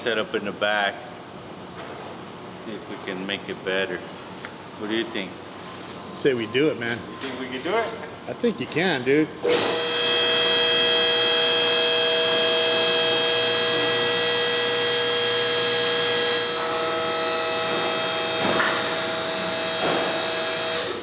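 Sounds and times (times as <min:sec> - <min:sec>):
machine electric whine: 0:09.4 - 0:21.0.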